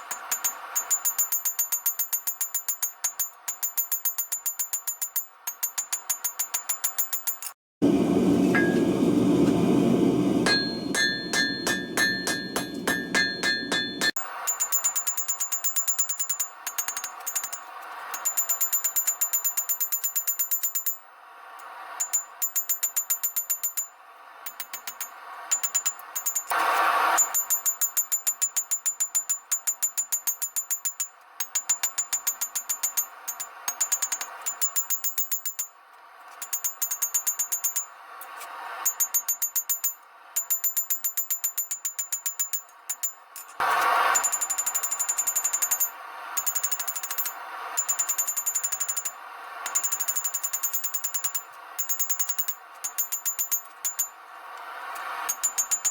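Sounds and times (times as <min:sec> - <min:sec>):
hammer blows on hot steel: 0:00.0 - 0:35.7, 0:36.4 - 0:55.9
gas forge roaring: 0:07.8 - 0:14.1
hammer blows on steel anvil: 0:08.4 - 0:09.6, 0:10.4 - 0:21.0.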